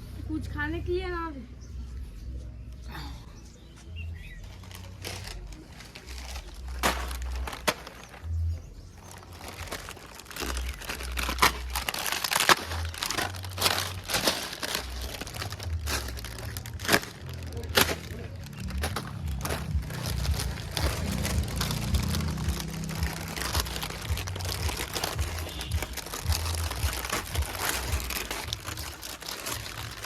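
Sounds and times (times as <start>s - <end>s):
crinkling and crackling clicks: 4.3s - 30.0s
low rumble: 13.0s - 30.0s.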